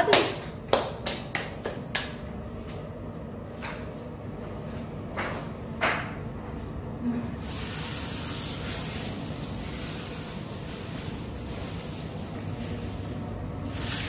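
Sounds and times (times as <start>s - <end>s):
flatbread sizzling on a hot pan: 7.4s - 14.0s.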